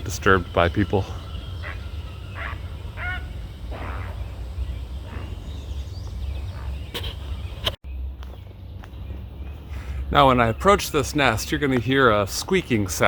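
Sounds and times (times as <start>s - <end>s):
heron harsh croaking calls: 0.5s - 5.8s.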